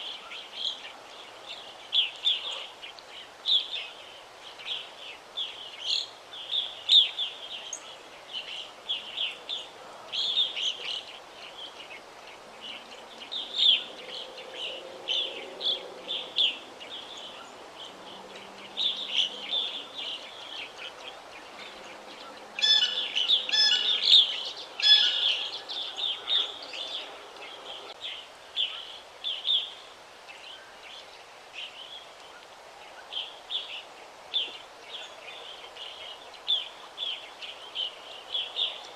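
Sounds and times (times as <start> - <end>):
songbirds chirping and singing: 5.8 - 29.7.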